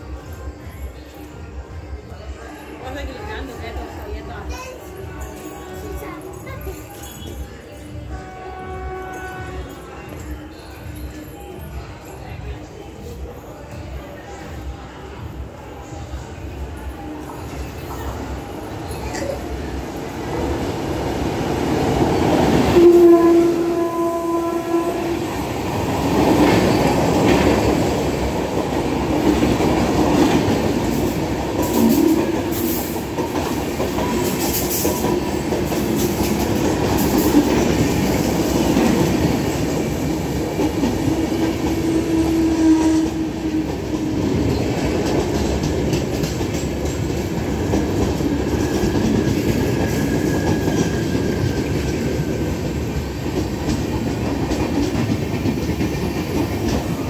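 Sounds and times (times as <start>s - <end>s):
train wheels on rails: 0.0s - 57.0s
locomotive horn: 8.1s - 9.8s, 22.7s - 25.4s, 41.8s - 43.5s.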